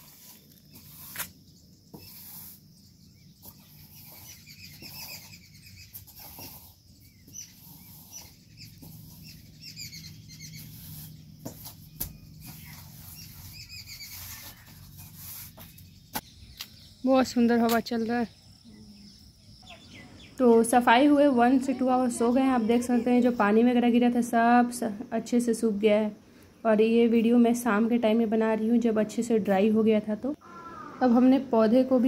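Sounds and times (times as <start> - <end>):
small birds chirping: 0.0 - 23.7.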